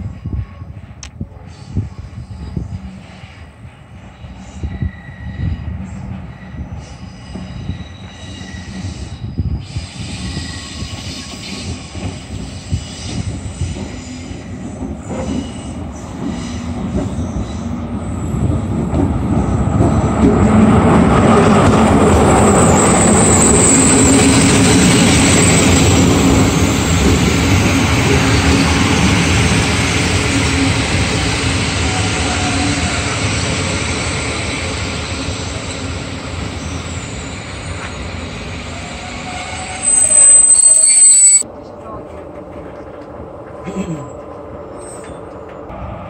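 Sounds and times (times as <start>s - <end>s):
diesel locomotive passing: 0.6s - 43.6s, 44.2s - 46.0s
high wheel squeal: 4.2s - 14.5s, 22.6s - 24.6s, 36.5s - 41.4s.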